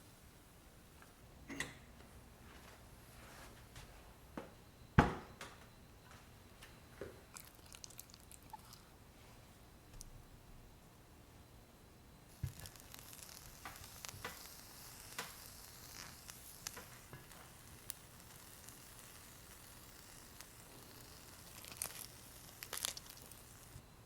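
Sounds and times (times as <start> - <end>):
kitchenware clicks and taps: 1.5 - 1.9
food sizzling faintly: 12.3 - 23.8.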